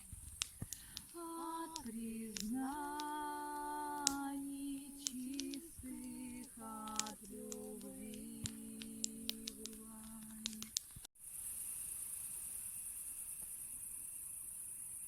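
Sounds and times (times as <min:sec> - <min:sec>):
sharp clicks: 0:00.0 - 0:11.1.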